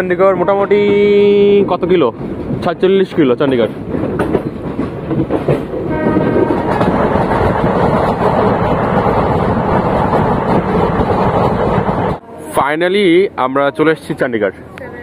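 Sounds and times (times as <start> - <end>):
train wheels rumbling on rails: 0.0 - 12.2
train horn: 5.9 - 6.9.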